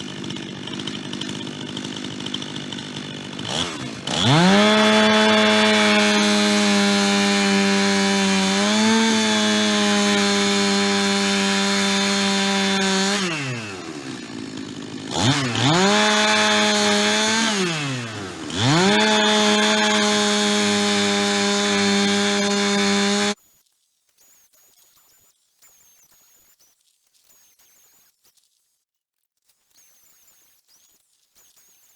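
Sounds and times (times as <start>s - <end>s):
chainsaw ripping a log: 0.0s - 23.4s.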